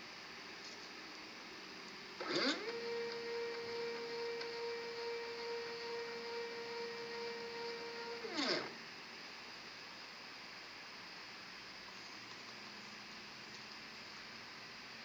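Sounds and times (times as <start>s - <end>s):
stepper motors whining: 2.2s - 8.8s.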